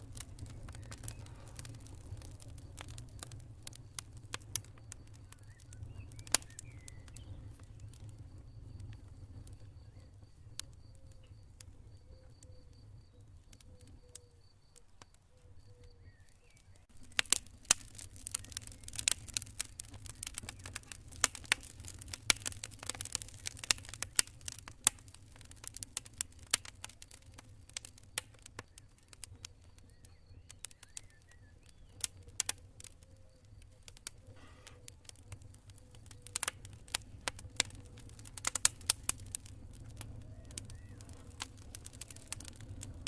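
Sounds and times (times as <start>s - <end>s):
campfire crackling and popping: 0.0s - 43.0s
low fire rumble: 0.0s - 43.0s
cricket chirping: 0.2s - 17.6s.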